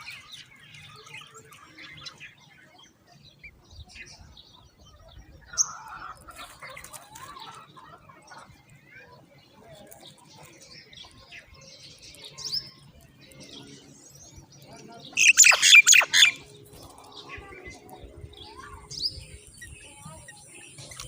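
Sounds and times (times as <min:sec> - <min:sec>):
bird chirps: 0:10.4 - 0:21.0
baby birds calling rapidly: 0:15.1 - 0:21.0.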